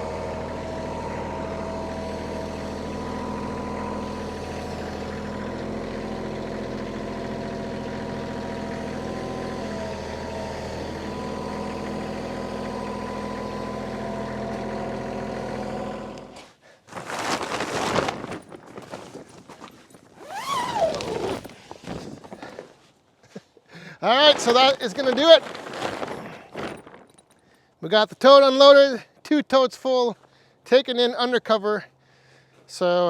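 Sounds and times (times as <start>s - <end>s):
diesel tractor engine idling: 0.0s - 16.4s
rough scraping noises: 16.9s - 22.9s, 24.0s - 27.2s.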